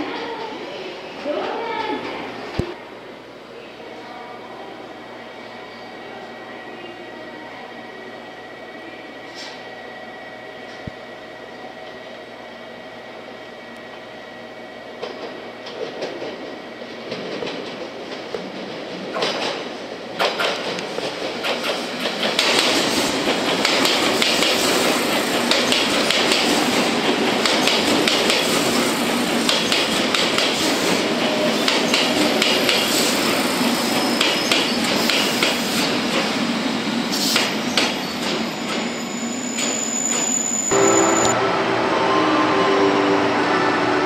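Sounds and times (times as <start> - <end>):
train wheels clacking: 15.0 - 36.4, 37.2 - 39.0.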